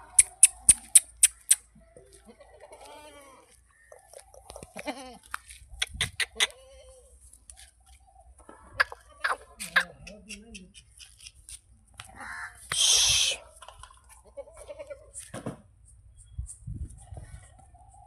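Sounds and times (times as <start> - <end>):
sharp clicks: 0.0 - 1.6
goat bleating: 4.7 - 5.3.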